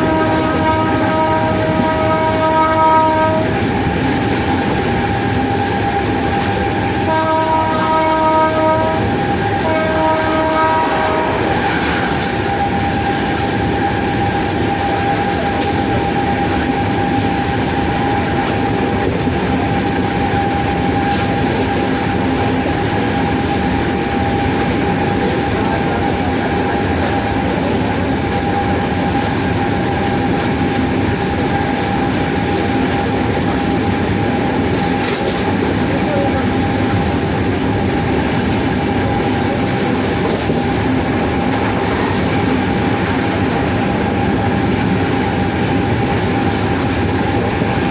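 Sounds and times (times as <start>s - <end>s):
train horn: 0.0s - 3.7s, 7.0s - 18.6s
locomotive rumble and rail noise: 0.0s - 47.9s.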